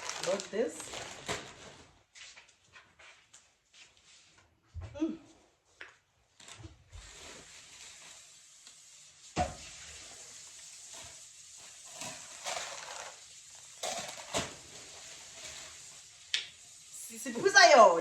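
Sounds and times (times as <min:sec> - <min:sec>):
packaging crinkling: 0:00.0 - 0:02.0, 0:11.8 - 0:15.9.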